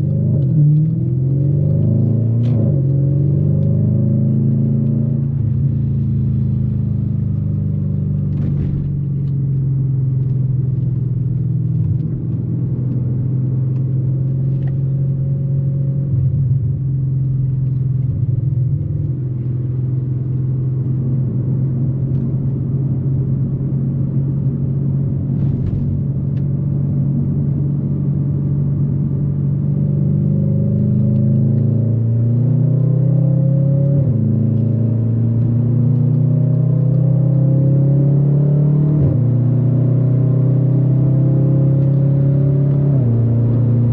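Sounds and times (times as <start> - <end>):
car engine running: 0.0 - 32.0.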